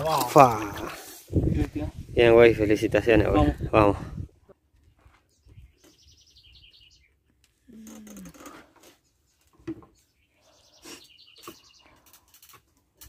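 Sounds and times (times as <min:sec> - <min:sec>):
small birds trilling: 0:05.2 - 0:12.2.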